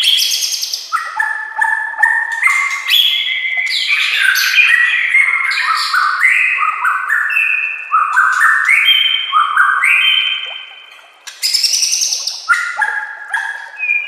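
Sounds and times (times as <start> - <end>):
songbird singing whistled phrases: 0.0 - 14.0.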